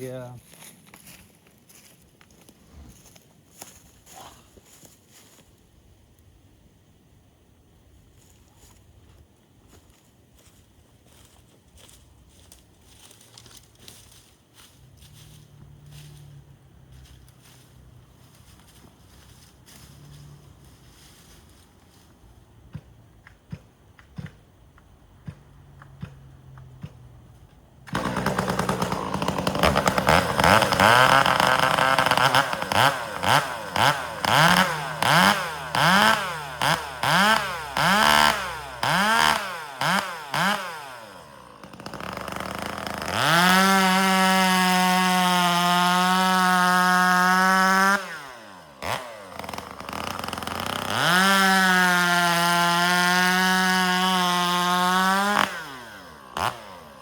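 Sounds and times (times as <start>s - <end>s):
chainsaw revving: 27.9s - 57.0s.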